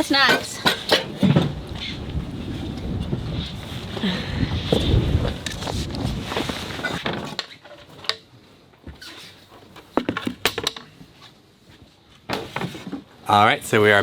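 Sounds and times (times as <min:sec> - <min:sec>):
wind buffeting the microphone: 0:01.1 - 0:07.0.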